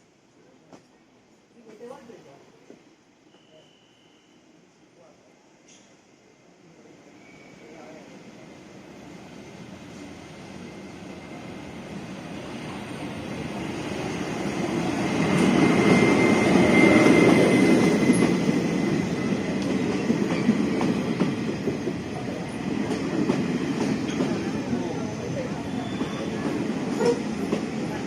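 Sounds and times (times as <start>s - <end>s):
high wheel squeal: 7.2s - 7.9s
train rumbling and clattering: 8.8s - 28.0s.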